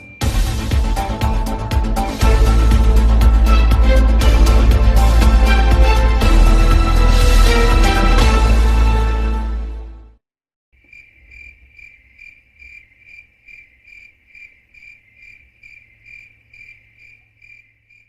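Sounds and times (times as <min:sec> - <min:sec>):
music: 0:00.0 - 0:10.2
cricket chirping: 0:10.8 - 0:18.0.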